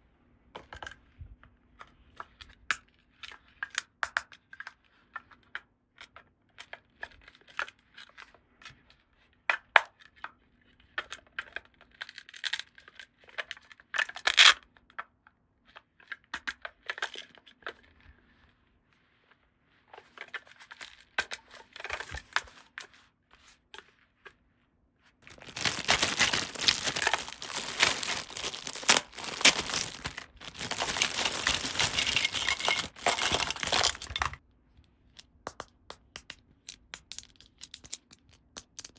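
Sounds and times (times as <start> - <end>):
packaging crinkling and tearing: 25.2 - 34.4, 36.7 - 38.9.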